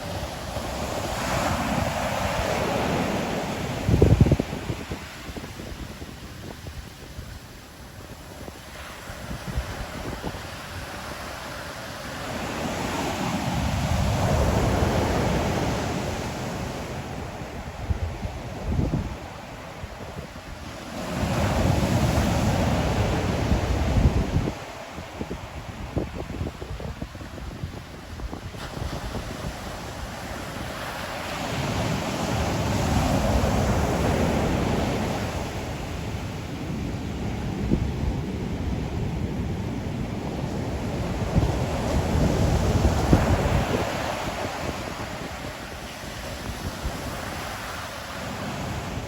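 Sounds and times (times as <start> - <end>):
low rumble of sea: 0.0 - 49.0
ocean surf washing onto shore: 0.0 - 49.0
wind buffeting microphone: 0.0 - 49.0.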